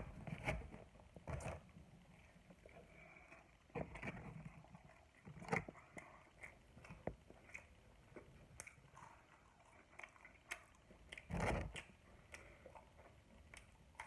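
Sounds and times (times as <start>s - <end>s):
crunching and smacking: 5.3s - 14.0s.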